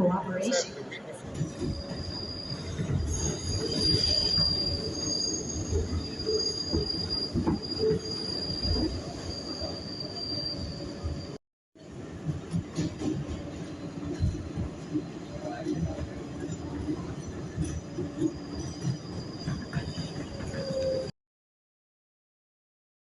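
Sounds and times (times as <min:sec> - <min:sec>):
train wheels squealing on rails: 0:00.4 - 0:11.4, 0:12.5 - 0:21.1.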